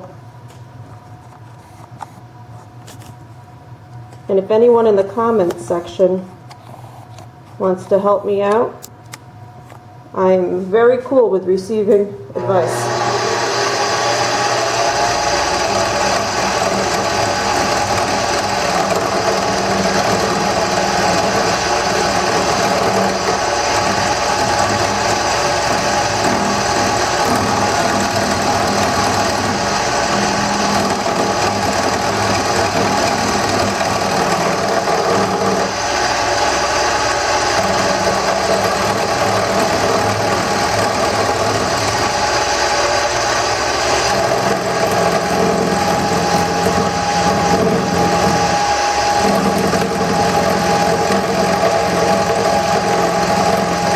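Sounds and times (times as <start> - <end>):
turning tool cutting wood: 12.4 - 53.9
wood lathe running: 12.4 - 53.9.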